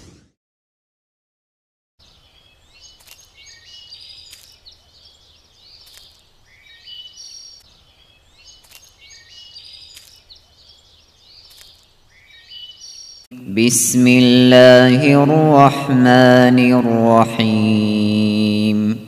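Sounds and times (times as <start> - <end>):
songbirds chirping: 2.0 - 19.0
sharp clicks: 2.9 - 3.3, 8.6 - 9.0.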